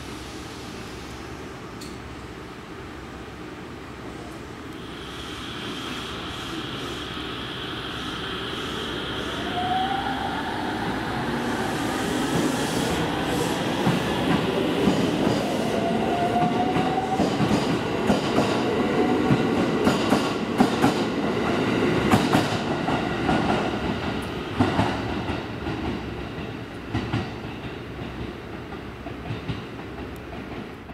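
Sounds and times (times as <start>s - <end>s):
electric train whine: 4.5s - 26.0s.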